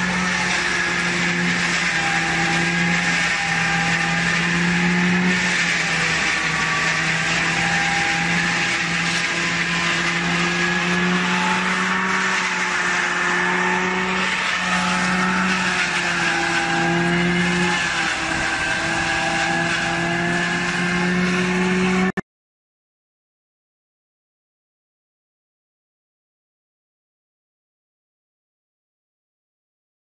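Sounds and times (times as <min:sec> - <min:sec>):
harvester machine hum: 0:00.0 - 0:22.1
rushing grinding noise: 0:00.0 - 0:22.2.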